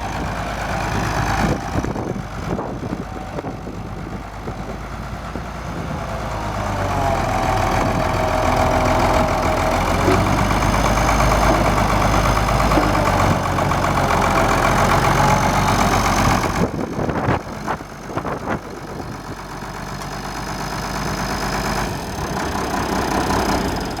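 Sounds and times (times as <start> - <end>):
tractor diesel engine running: 0.0 - 24.0
tractor clunks: 6.9 - 24.0.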